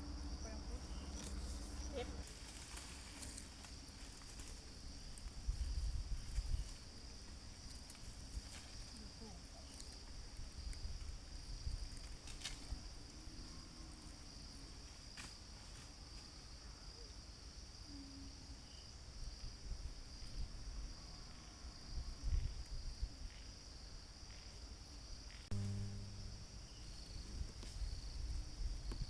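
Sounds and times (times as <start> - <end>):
insects chirping chorus: 0.0 - 29.0
low rumbles: 25.5 - 26.7.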